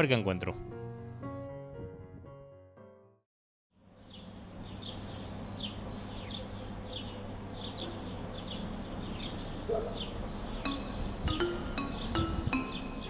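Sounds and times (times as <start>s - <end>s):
small birds chirping: 3.8s - 13.0s.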